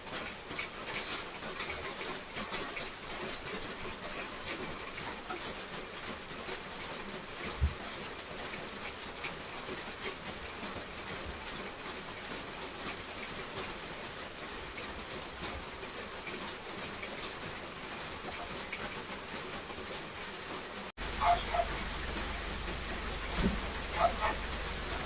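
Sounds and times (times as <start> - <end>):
heavy rain pattering: 0.0 - 25.0
dull thump: 23.3 - 23.7.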